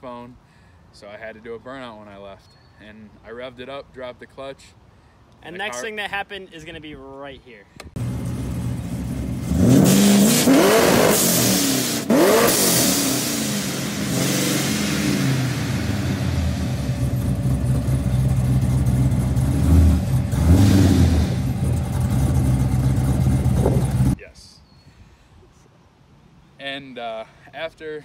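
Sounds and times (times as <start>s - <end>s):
vee eight engine revving: 8.0s - 24.2s.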